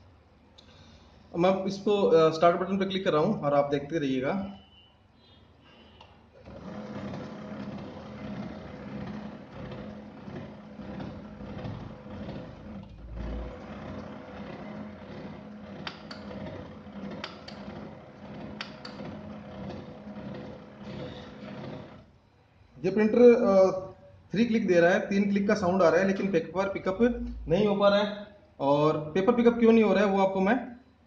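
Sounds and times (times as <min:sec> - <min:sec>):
printer motor running: 0:06.4 - 0:22.2.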